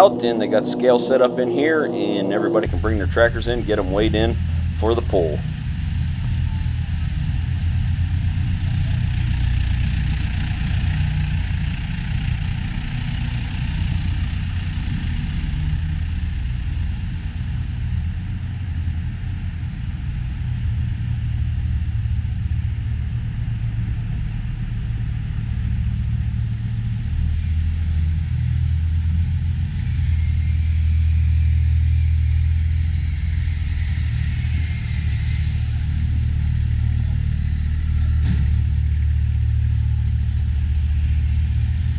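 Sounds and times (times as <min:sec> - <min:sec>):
tractor and truck engines rumbling: 0:00.0 - 0:18.0, 0:22.9 - 0:41.9.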